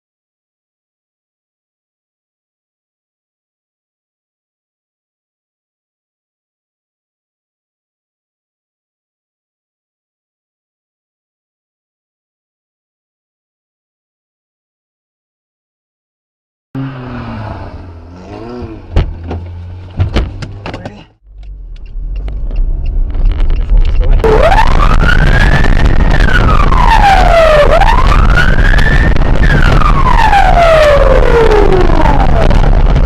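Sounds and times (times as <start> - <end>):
vehicle hum: 16.8 - 33.0
sharp knocks: 18.9 - 22.4
emergency vehicle siren wailing: 21.5 - 33.0.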